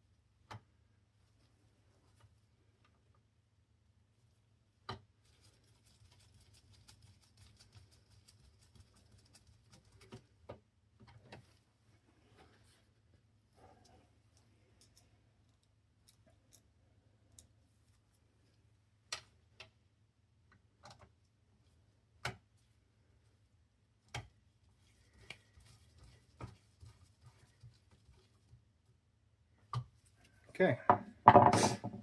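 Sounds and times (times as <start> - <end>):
small parts and tool clicks: 14.8 - 16.7.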